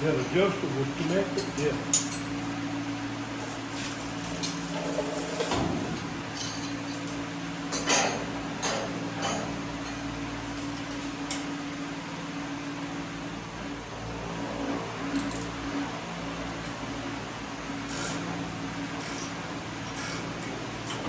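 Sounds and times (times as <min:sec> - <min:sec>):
hand tools clinking on steel: 0:01.0 - 0:02.4.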